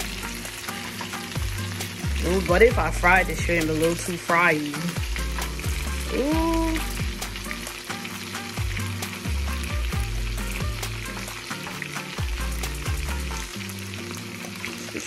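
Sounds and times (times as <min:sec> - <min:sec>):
shrimp sizzling in hot oil: 0:00.0 - 0:15.0
deep bass beat: 0:01.4 - 0:04.0, 0:05.0 - 0:07.6, 0:08.6 - 0:11.2, 0:12.2 - 0:13.5.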